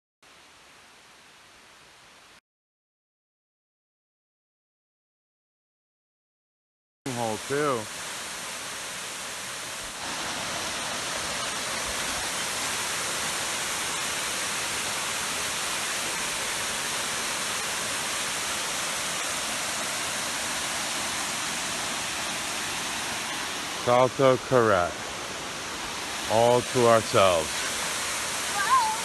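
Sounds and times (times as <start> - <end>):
waterfall rushing: 7.1 - 29.0.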